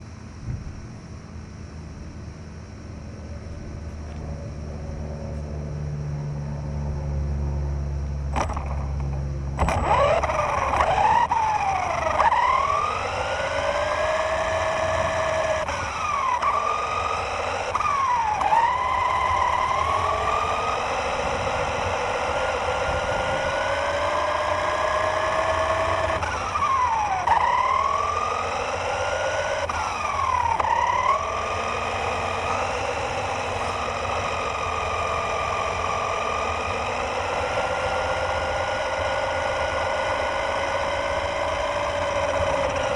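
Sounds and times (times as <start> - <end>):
steady low rumble: 0.0 - 12.2
toy car motor whining: 8.3 - 42.9.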